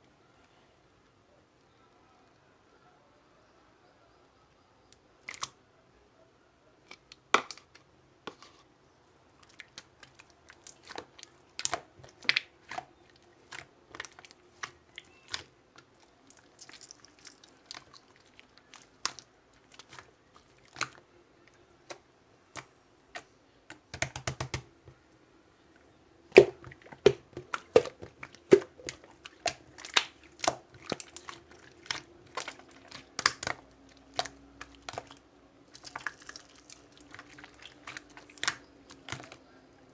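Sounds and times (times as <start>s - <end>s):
slime sticky clicks and pops: 32.4s - 33.6s.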